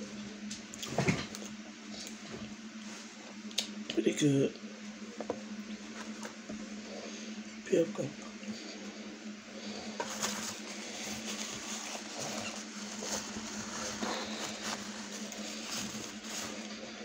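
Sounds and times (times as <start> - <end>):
paper napkin rustling: 9.6 - 17.0.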